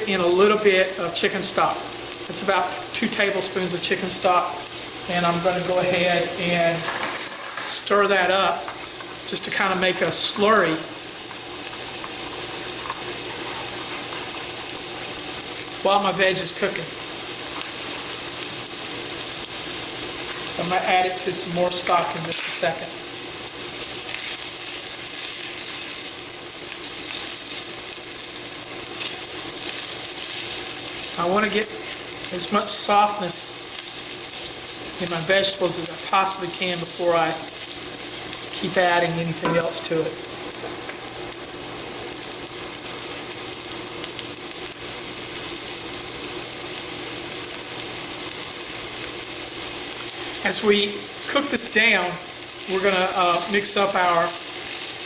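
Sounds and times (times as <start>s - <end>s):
vegetables sizzling in a skillet: 0.0s - 55.0s.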